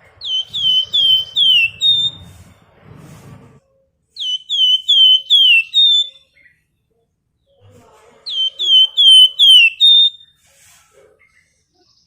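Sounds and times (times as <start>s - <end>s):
songbird whistling: 0.2s - 2.4s, 4.2s - 6.5s, 8.3s - 10.4s.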